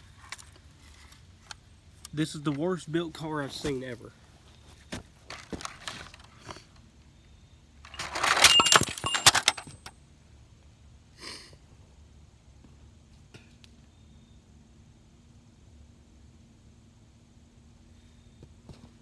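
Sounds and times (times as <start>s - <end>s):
plastic rattling and clicking: 5.3s - 6.4s, 7.9s - 9.9s.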